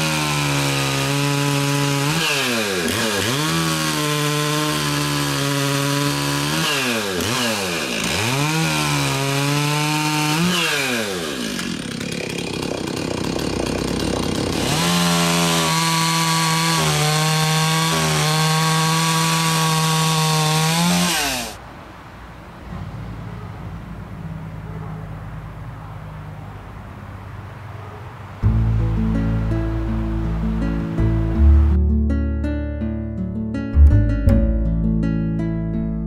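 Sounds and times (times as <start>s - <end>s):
chainsaw cutting wood: 0.0s - 21.6s.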